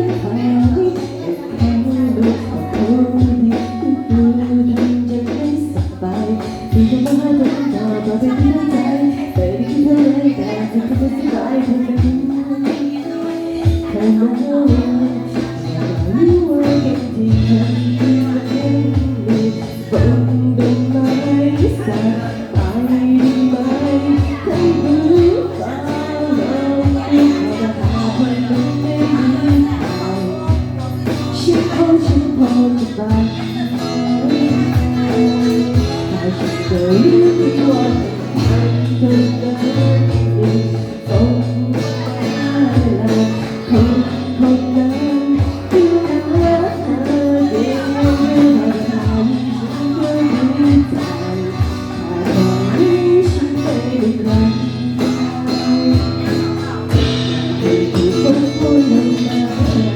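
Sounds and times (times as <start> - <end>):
drum kit beat: 0.0 - 59.9
person singing: 0.0 - 59.9
strummed guitar: 0.0 - 59.9.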